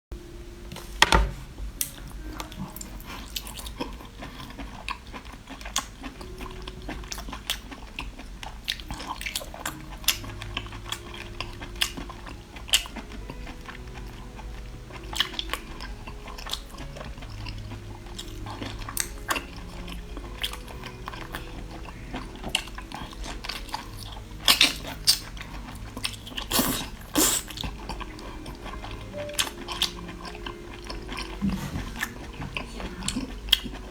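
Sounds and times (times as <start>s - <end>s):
person crunching food: 1.8s - 33.9s.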